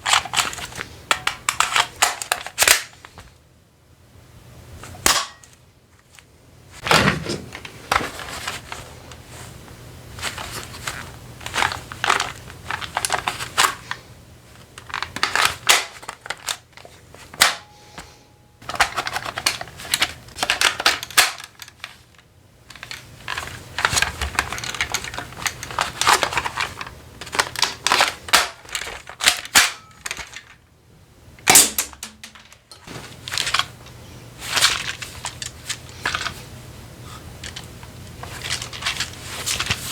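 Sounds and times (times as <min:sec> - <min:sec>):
airsoft gun clicks and rattles: 0:18.6 - 0:22.0, 0:22.7 - 0:30.6.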